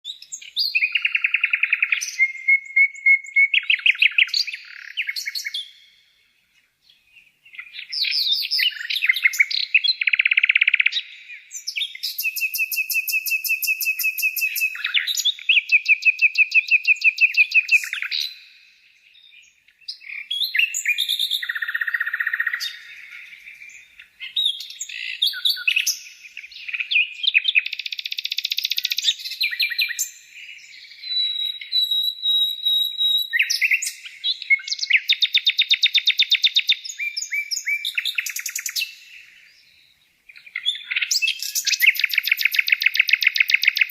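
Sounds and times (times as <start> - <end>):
songbird singing trills: 0.0 - 43.9.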